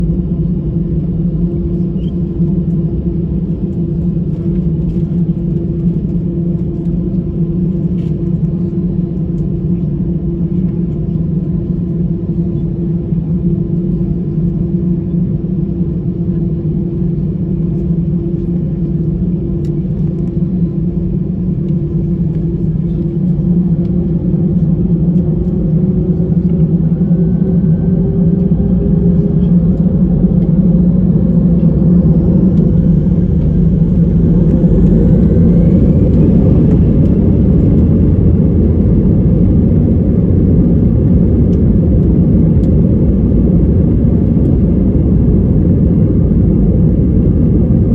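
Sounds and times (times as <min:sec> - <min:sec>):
jet engines spooling up: 0:25.0 - 0:47.9.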